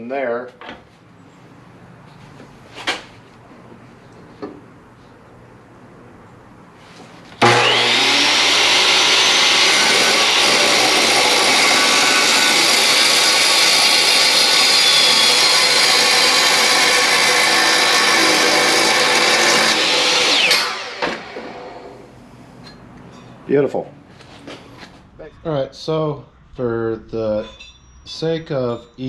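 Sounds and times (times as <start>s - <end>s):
chop saw cutting metal tube: 7.4s - 21.9s.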